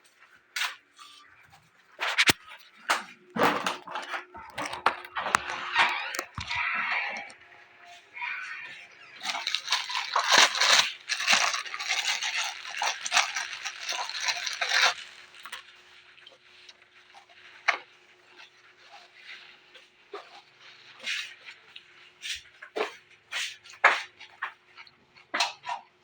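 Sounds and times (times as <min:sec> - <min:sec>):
crunching raw vegetables: 0:08.2 - 0:25.8.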